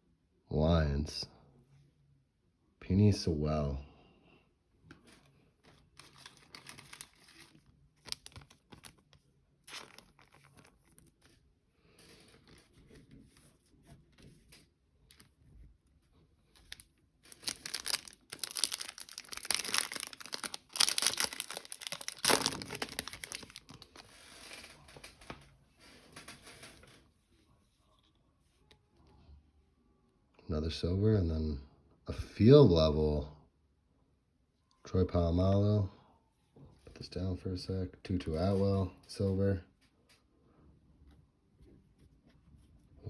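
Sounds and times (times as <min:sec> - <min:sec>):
cards being shuffled: 0:05.6 - 0:11.4, 0:16.6 - 0:24.7
wrapper tearing and crinkling: 0:05.8 - 0:11.3, 0:16.6 - 0:25.2.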